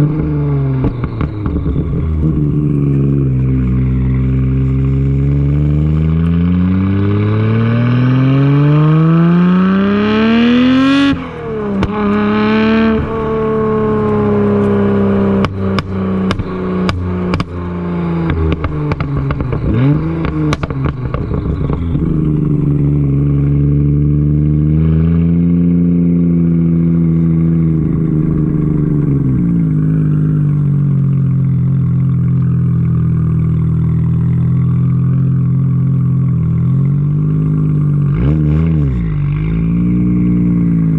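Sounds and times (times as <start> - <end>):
exhaust pops and crackles: 0.0 - 5.2, 11.1 - 24.0, 26.4 - 40.9
car engine accelerating: 0.0 - 40.9.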